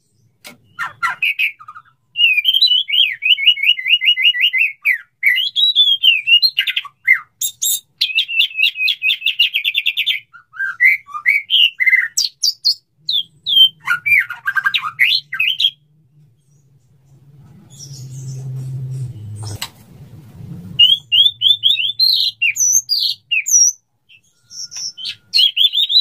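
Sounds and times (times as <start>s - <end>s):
bird singing whistled phrases: 0.7s - 15.8s, 20.8s - 26.0s
low steady hum: 12.9s - 22.5s.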